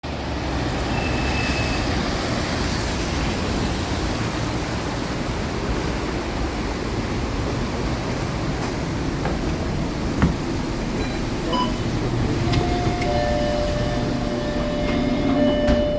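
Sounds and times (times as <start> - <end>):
bus diesel engine rumble: 1.9 - 15.9
road and body noise: 7.5 - 15.9.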